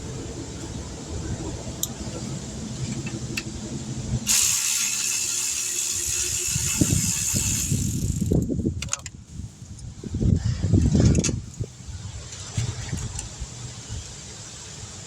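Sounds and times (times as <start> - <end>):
loud steady air hiss: 0.0 - 9.7.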